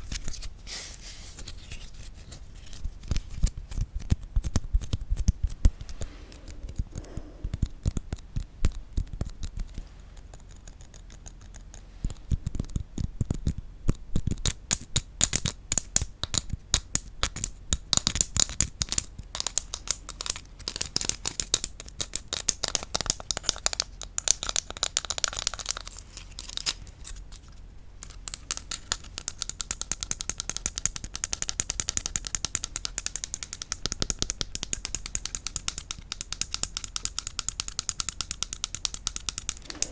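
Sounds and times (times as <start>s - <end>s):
rapid tapping on wood: 28.3s - 39.9s.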